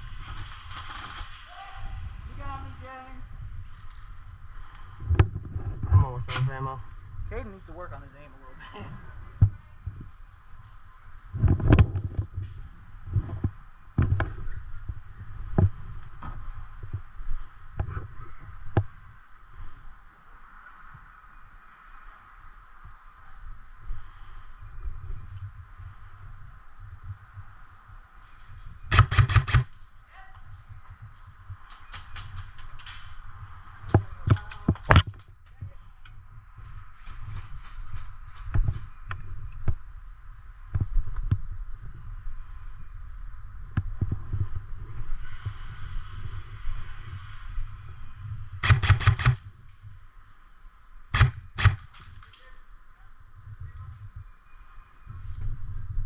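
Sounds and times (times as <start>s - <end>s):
loud sharp cracks: 0.3s - 1.6s, 28.9s - 29.8s, 48.6s - 49.4s, 51.2s - 52.4s
airsoft guns firing: 28.9s - 29.8s, 48.6s - 49.4s, 51.2s - 52.3s.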